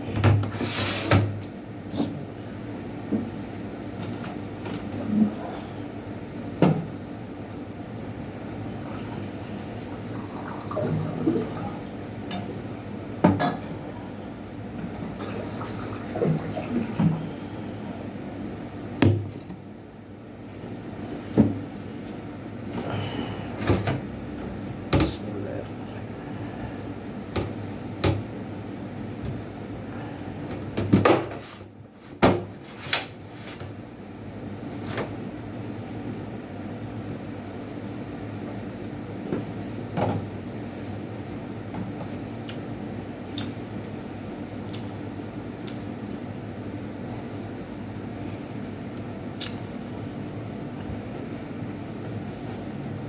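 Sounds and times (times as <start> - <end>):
low background hum: 0.0 - 53.0.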